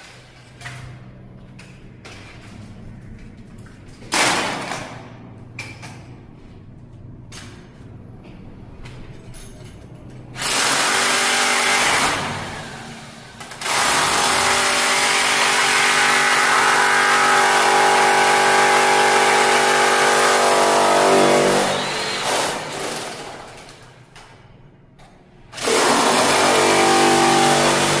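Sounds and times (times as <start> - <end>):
power tool running: 10.4 - 23.2, 25.6 - 28.0.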